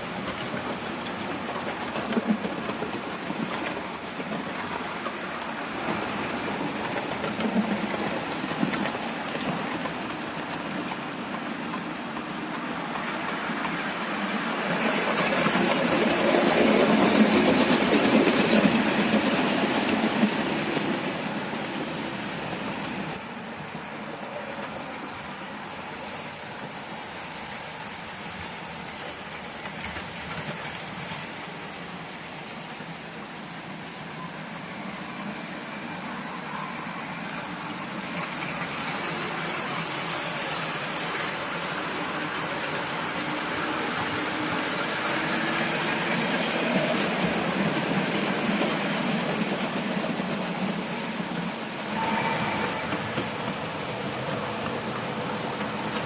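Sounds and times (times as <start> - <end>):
model train wheels clicking: 37.7 - 56.0.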